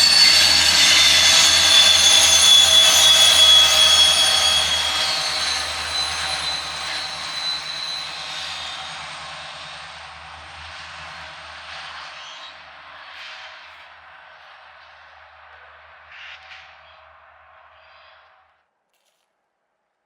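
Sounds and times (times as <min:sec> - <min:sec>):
train wheels squealing: 0:00.0 - 0:13.9
train rumble: 0:00.0 - 0:16.8.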